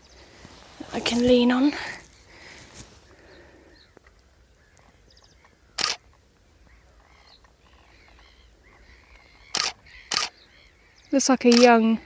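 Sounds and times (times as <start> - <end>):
faint bird calls: 0.0 - 12.0
camera shutter clack: 5.8 - 6.0, 9.5 - 10.3.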